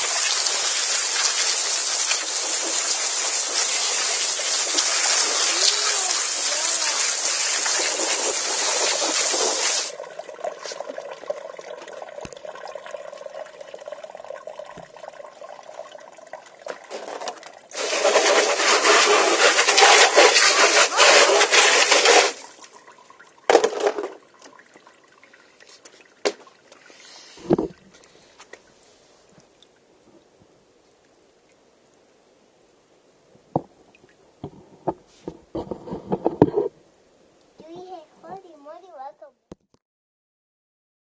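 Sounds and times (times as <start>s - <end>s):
rc truck rushing noise: 17.8s - 22.4s.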